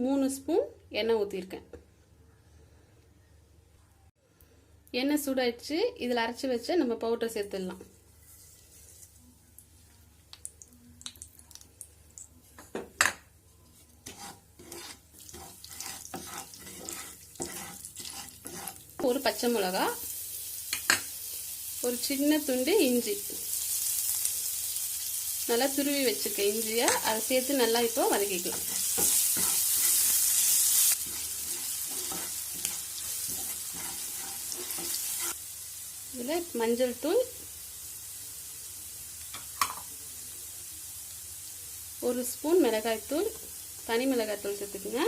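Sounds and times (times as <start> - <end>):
oil sizzling: 7.4 - 45.0
metal spoon scraping a frying pan: 13.8 - 19.2, 28.3 - 35.4.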